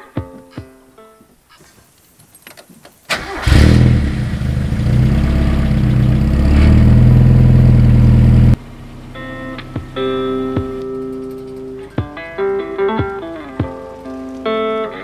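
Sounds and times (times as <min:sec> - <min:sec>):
car engine starting and running: 0:03.1 - 0:12.0
guitar music: 0:05.4 - 0:15.0.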